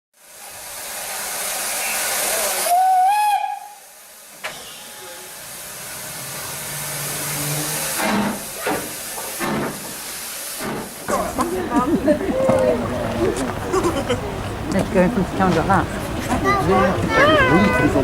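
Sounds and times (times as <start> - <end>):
steam whistle blast: 0.2 - 8.2
steam locomotive hissing steam: 0.2 - 11.7.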